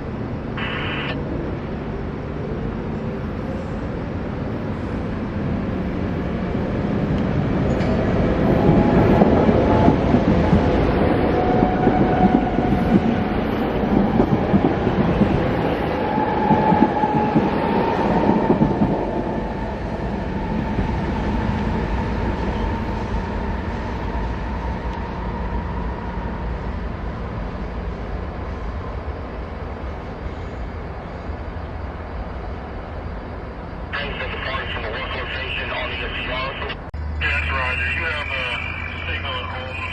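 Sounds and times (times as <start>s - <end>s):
train rumbling on rails: 0.0s - 39.9s
faint steady whine: 0.6s - 1.2s, 33.7s - 39.9s.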